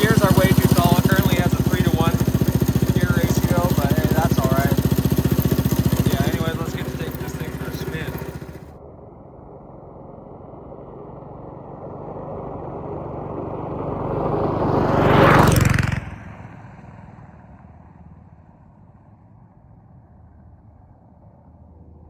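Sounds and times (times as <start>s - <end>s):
go-kart engine passing by: 0.0s - 8.8s, 10.7s - 18.1s.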